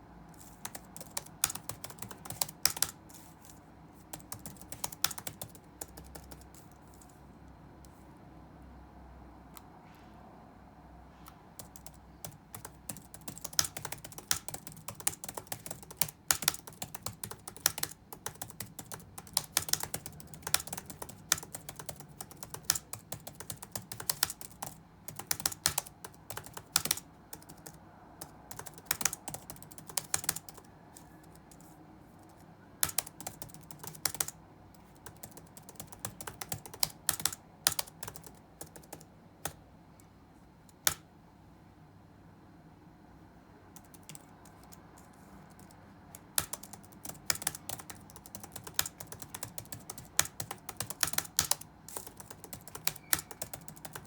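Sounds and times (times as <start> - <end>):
faint low hum: 0.0 - 54.0
keyboard key clicks: 32.8 - 34.3.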